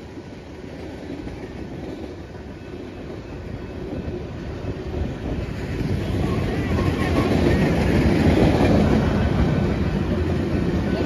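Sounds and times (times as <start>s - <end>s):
steel train wheels rumbling on rails: 0.0s - 11.0s.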